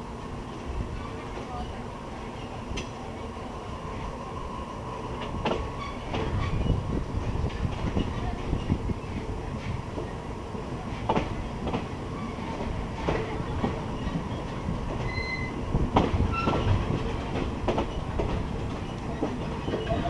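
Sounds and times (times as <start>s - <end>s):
train rumbling on track: 0.0s - 20.0s
high-pitched wheel squeals: 15.0s - 15.6s.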